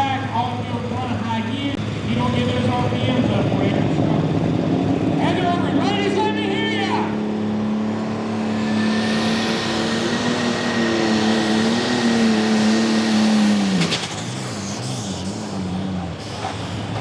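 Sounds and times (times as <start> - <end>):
tractor engine revving high: 1.8 - 17.0.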